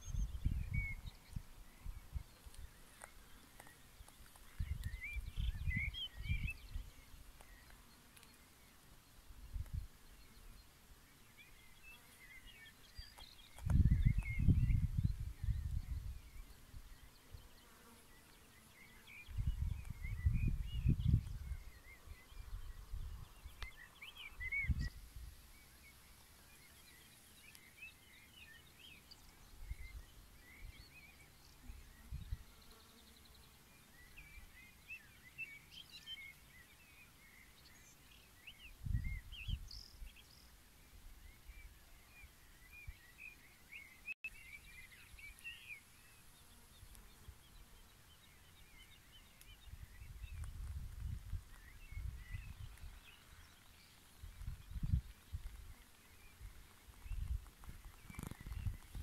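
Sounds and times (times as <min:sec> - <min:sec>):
wind rumble on microphone: 0:00.0 - 0:02.8, 0:04.5 - 0:07.2, 0:09.3 - 0:09.9, 0:13.0 - 0:17.4, 0:19.2 - 0:25.4, 0:31.7 - 0:32.5, 0:38.7 - 0:40.4, 0:49.2 - 0:59.0
small birds chirping: 0:00.0 - 0:59.0.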